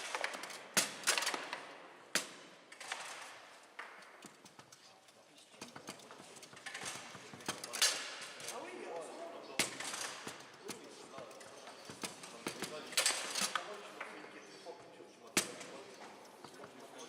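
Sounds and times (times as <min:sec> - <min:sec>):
foosball rods clacking: 0:00.0 - 0:01.7.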